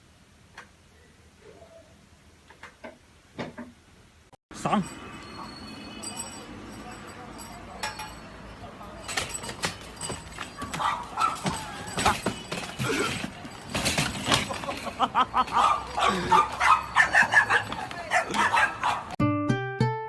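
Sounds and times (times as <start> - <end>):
dog barking: 10.6 - 11.7, 15.5 - 19.2
guitar music: 19.2 - 20.0.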